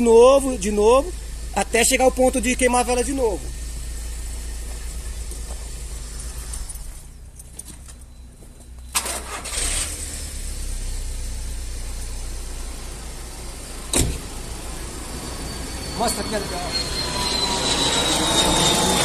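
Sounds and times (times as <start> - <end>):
car engine running: 0.0 - 19.0
loud noisy engine burst: 9.0 - 10.6, 14.9 - 19.0.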